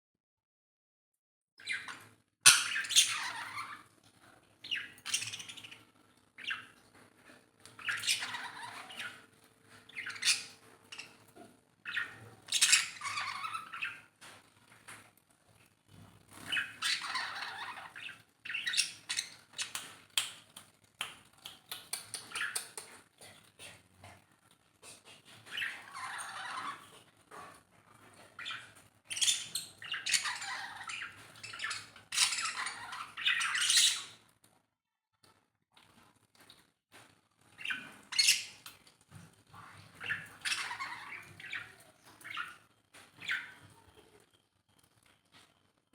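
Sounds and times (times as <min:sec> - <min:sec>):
lovebirds chirping and squawking: 0:01.6 - 0:03.9, 0:04.6 - 0:06.8, 0:07.7 - 0:14.2, 0:16.3 - 0:20.0, 0:22.0 - 0:22.8, 0:25.2 - 0:34.2, 0:37.6 - 0:38.8, 0:39.6 - 0:43.8.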